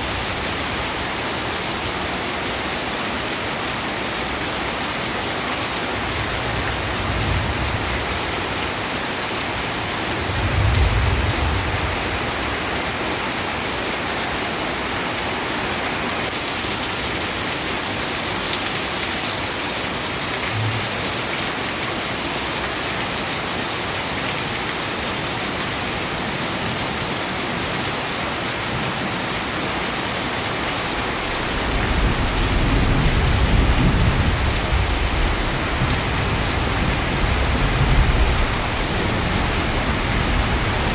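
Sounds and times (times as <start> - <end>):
heavy rain falling: 0.0 - 40.9
thunder rumbling: 10.2 - 12.5, 20.5 - 21.1.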